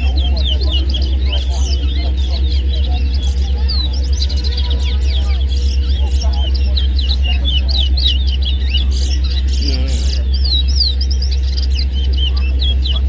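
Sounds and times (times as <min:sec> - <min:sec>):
finches whistling chirps: 0:00.0 - 0:13.0
steady low hum: 0:00.0 - 0:13.0.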